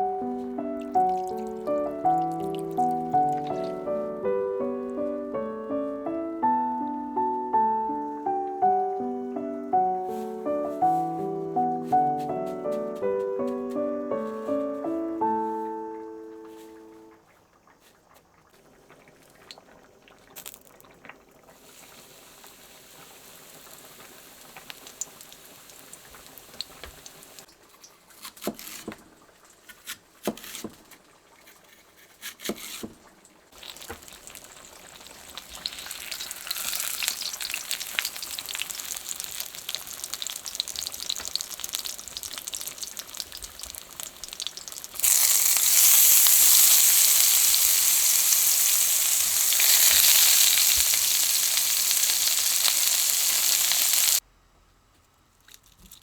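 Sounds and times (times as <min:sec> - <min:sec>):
food sizzling in a pan: 0:00.0 - 0:04.2, 0:21.5 - 0:27.5, 0:33.5 - 0:54.2.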